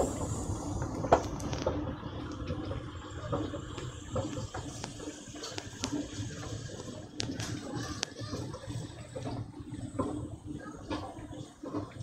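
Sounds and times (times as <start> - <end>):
steady wash of noise: 0.0 - 7.3
scattered clicks and knocks: 3.3 - 12.0.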